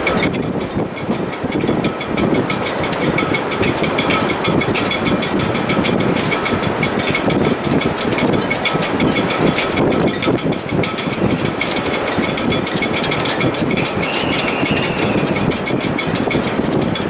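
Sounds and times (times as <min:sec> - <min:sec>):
rapid light ticking: 0:00.0 - 0:17.0
wind whistling in rigging: 0:00.0 - 0:17.0
wind rushing: 0:13.4 - 0:17.0.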